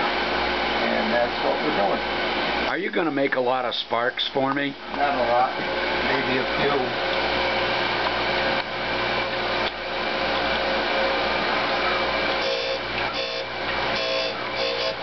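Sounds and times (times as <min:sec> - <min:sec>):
ringing tone: 0:12.4 - 0:15.0
surface grinder grinding metal: 0:12.4 - 0:15.0.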